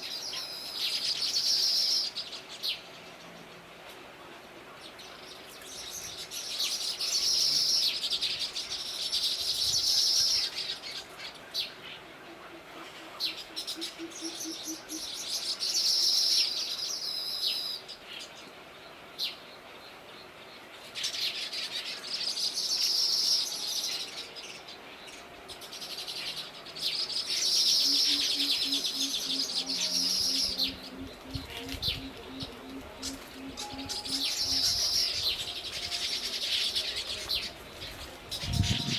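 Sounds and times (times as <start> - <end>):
songbird chattering trills: 27.4 - 37.5.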